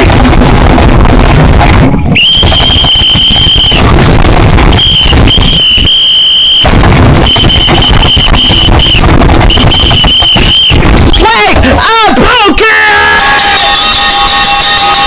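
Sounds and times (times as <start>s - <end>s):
dense low noise: 0.0s - 12.3s
shrill high tone blasts: 2.2s - 11.9s, 12.9s - 15.0s.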